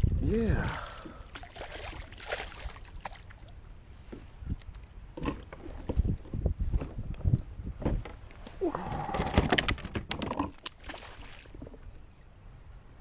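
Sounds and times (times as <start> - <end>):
bumps against hull: 5.2 - 10.6.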